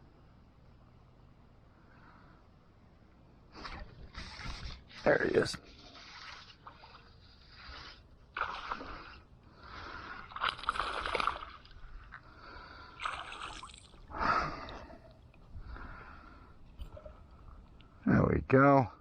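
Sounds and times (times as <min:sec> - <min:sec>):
fish thrashing water splashing: 0:10.2 - 0:11.8, 0:13.0 - 0:14.1.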